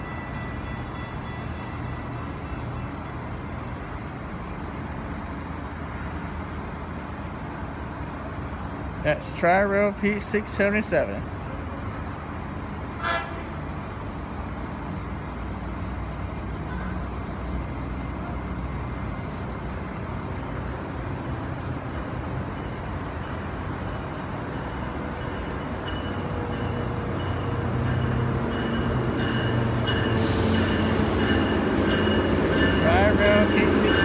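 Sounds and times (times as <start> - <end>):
approaching train hum and whine: 0.0 - 34.0.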